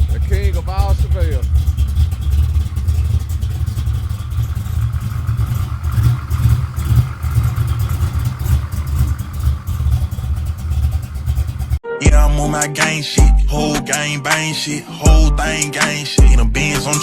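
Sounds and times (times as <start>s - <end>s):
car engine idling unevenly: 0.0s - 11.8s.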